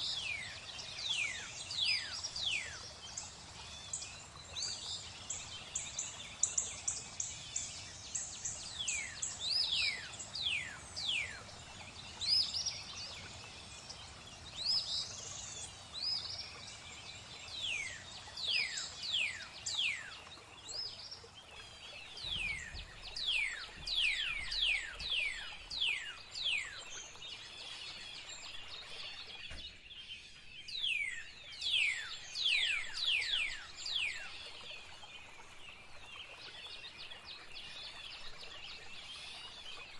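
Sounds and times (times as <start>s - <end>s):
birds chirping: 0.0s - 29.8s
flowing water: 0.0s - 39.9s.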